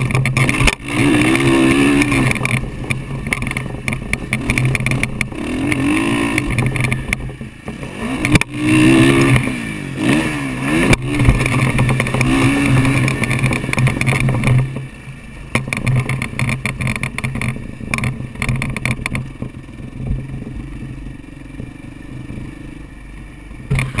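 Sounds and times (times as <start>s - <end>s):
dirt bike engine revving: 0.0s - 21.6s, 23.7s - 24.0s
knocks and rattles from bumps: 15.5s - 20.2s.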